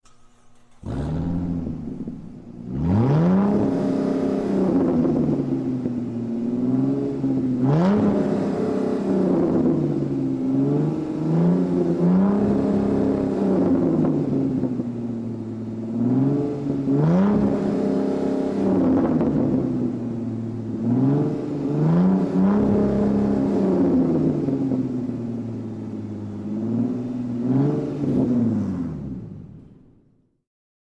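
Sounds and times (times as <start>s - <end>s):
sports car engine revving: 0.0s - 30.0s.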